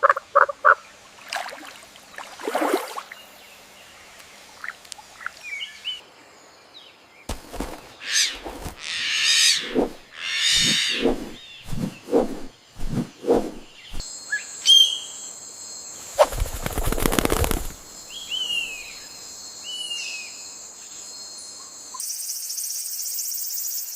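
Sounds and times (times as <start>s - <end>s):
low croaking calls: 0.0s - 1.0s, 7.4s - 12.0s
harsh noisy calls: 8.0s - 11.0s.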